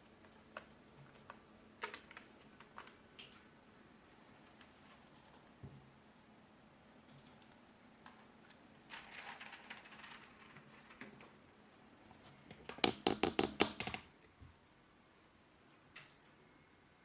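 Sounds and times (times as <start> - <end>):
keyboard typing: 0.2 - 3.5, 12.2 - 14.1.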